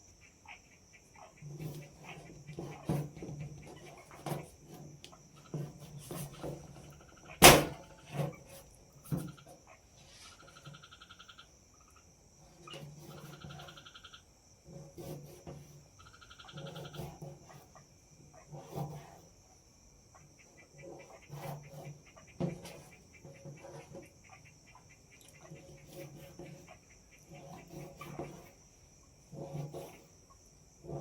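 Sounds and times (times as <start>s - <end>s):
insects chirring: 0.0s - 31.0s
knocks: 7.4s - 8.3s
rapidly pulsing animal calls: 9.3s - 12.1s, 13.1s - 14.3s, 16.0s - 18.6s, 20.1s - 28.6s.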